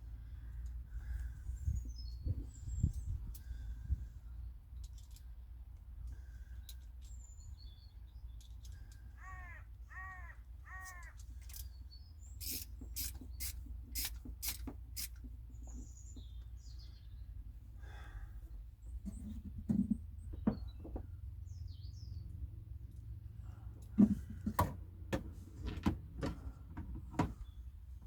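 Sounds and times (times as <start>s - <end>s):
bird cawing: 8.8s - 11.2s.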